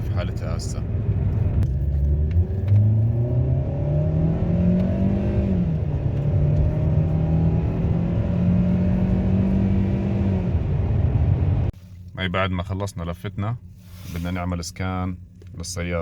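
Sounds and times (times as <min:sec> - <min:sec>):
car engine accelerating: 0:00.0 - 0:11.8.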